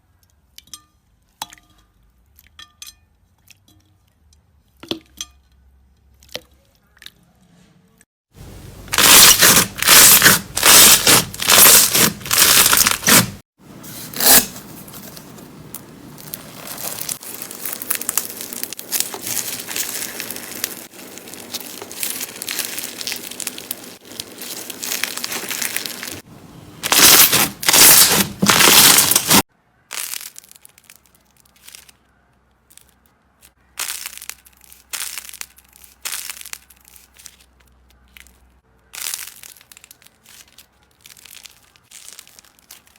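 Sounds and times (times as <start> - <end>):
slime squeezed and crackling: 8.9 - 13.4, 16.2 - 32.0, 32.7 - 42.9.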